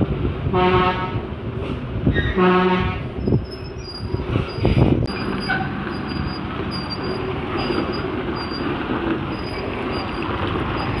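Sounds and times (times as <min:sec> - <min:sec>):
truck engine rumbling: 0:00.0 - 0:11.0
short high squeaks: 0:02.1 - 0:02.4, 0:03.2 - 0:08.7.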